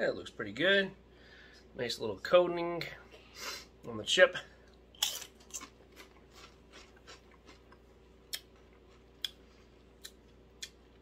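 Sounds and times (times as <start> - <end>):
tortilla chip crunching: 4.9 - 10.8.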